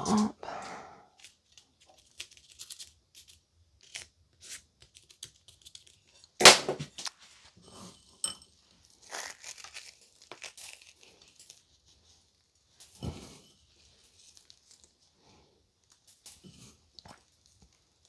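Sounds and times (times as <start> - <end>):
crumbs rustling and clicking: 8.9 - 12.2.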